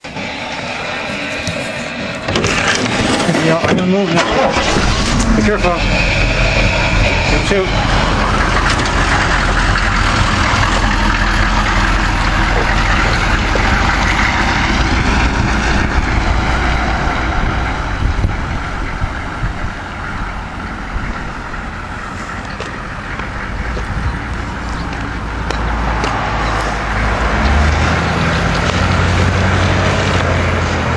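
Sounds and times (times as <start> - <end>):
heavier low engine note: 0.0 - 30.9
truck engine running: 0.0 - 30.9.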